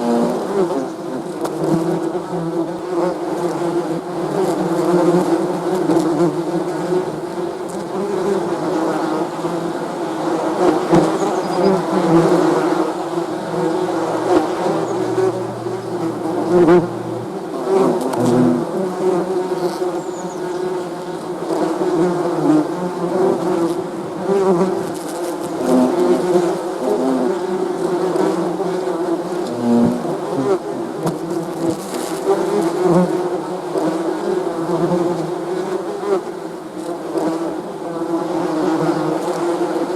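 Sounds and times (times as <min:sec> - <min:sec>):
bees buzzing: 0:04.1 - 0:23.6.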